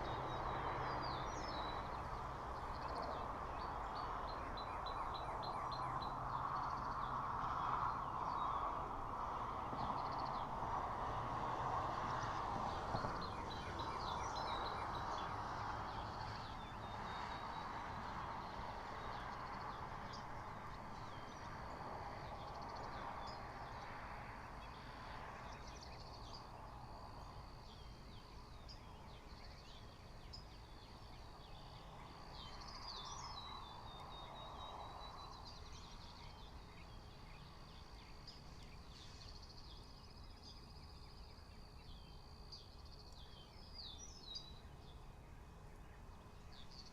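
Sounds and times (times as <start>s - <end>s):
songbirds chirping and trilling: 0.0s - 46.9s.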